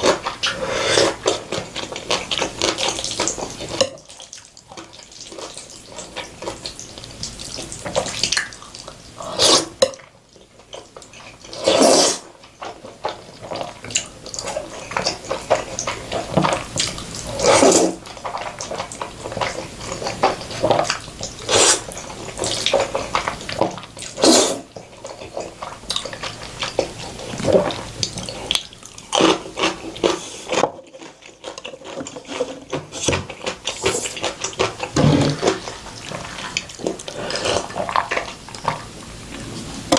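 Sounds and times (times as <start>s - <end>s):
slurping noodles: 0.0s - 3.7s, 9.2s - 9.8s, 11.5s - 12.3s, 14.4s - 18.6s, 19.4s - 23.4s, 24.0s - 26.0s, 31.9s - 38.5s
wet chewing and smacking: 0.0s - 9.2s, 9.8s - 39.9s.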